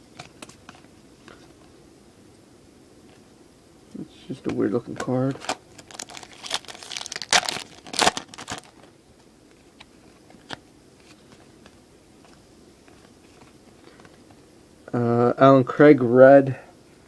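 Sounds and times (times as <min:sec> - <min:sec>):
foil wrapper tearing and crinkling: 0:05.4 - 0:08.9.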